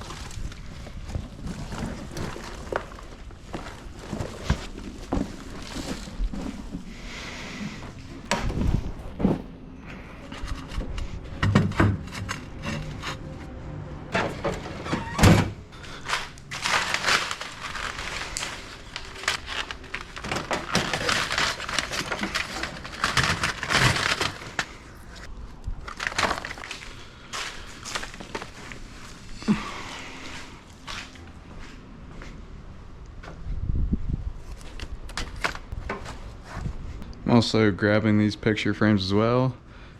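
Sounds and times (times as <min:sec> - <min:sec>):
rustling and scraping: 0:00.0 - 0:15.1, 0:15.8 - 0:32.3, 0:34.4 - 0:37.0
carpet rolls thudding: 0:00.3 - 0:07.0, 0:07.9 - 0:09.6.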